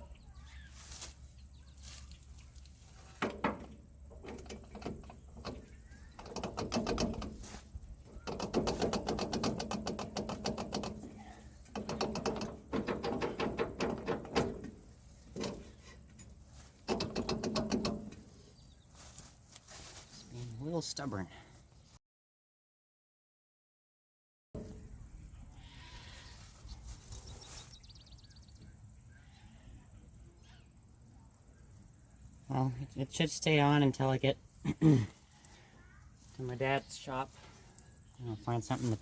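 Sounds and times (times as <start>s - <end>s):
metal knocks: 3.2s - 18.4s, 24.6s - 25.0s
metal clicking and rattling: 3.2s - 18.5s.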